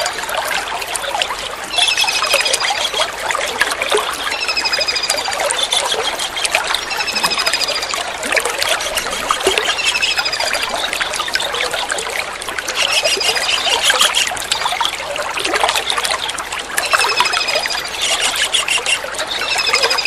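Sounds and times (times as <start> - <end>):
water trickling: 0.0 - 20.0
kingfisher calling: 4.3 - 11.8, 12.7 - 14.3, 16.8 - 20.0.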